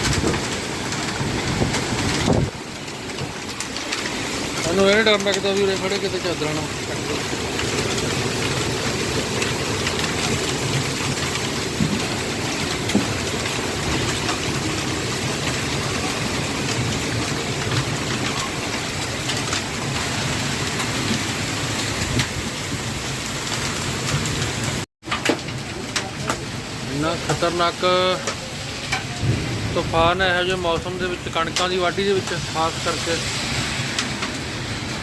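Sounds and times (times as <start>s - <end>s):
strong wind: 0.0s - 4.6s, 7.0s - 24.8s
hail and rain falling: 0.0s - 35.0s
hailstones cracking: 0.0s - 35.0s.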